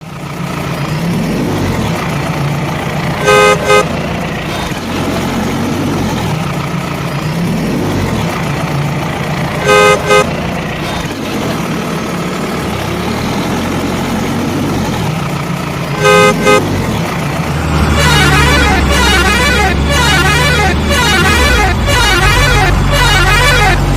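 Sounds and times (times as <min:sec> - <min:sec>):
engine running with low hum: 0:00.0 - 0:23.9
vehicle horn honking: 0:03.2 - 0:04.3, 0:09.6 - 0:10.9, 0:15.9 - 0:16.8, 0:17.8 - 0:23.9.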